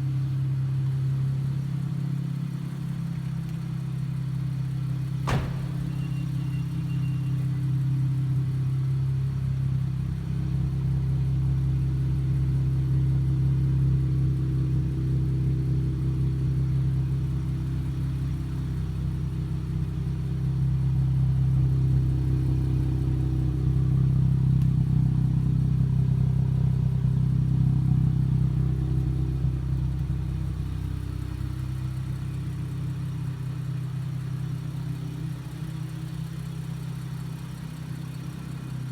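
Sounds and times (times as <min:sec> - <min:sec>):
car exhaust droning: 0:04.1 - 0:08.5
sharp click: 0:05.3 - 0:06.7.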